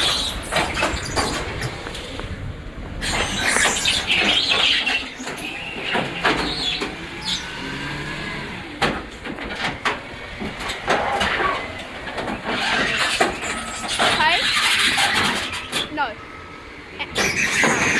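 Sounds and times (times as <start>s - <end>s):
sharp knocks and clatters: 0.0s - 2.3s, 3.0s - 7.1s, 8.8s - 16.0s.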